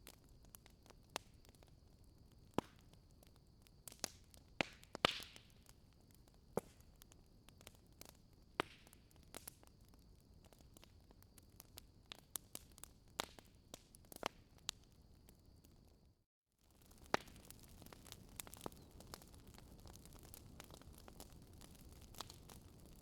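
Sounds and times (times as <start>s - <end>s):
bonfire crackling and popping: 0.0s - 23.0s.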